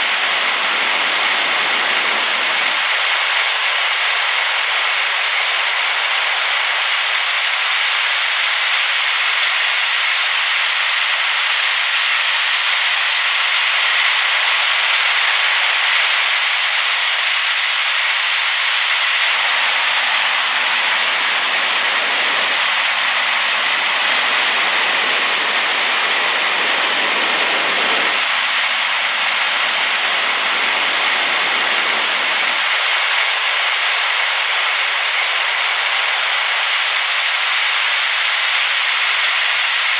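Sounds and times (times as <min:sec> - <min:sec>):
waterfall rushing: 0:00.0 - 0:06.9, 0:19.2 - 0:37.4.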